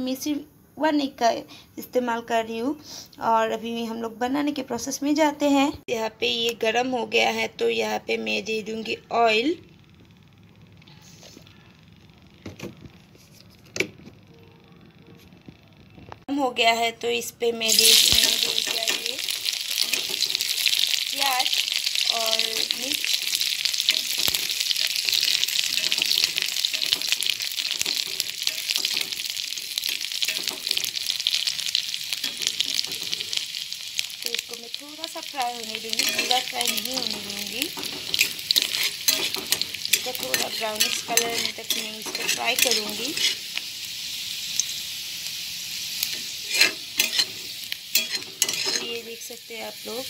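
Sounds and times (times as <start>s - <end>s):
onions sizzling in hot oil: 17.2s - 50.0s
metal spatula stirring: 17.7s - 33.4s, 35.0s - 43.6s, 46.1s - 49.0s.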